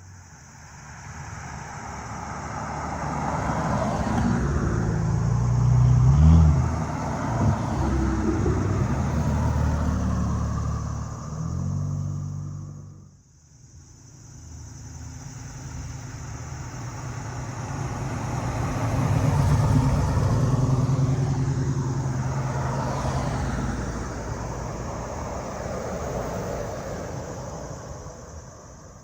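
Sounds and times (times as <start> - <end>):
motor vehicle driving past: 2.6 - 13.2, 16.8 - 26.4.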